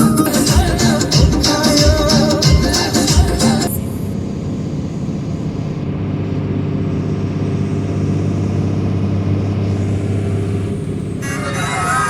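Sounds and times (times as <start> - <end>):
music: 0.0 - 3.8
truck engine droning: 0.0 - 12.0.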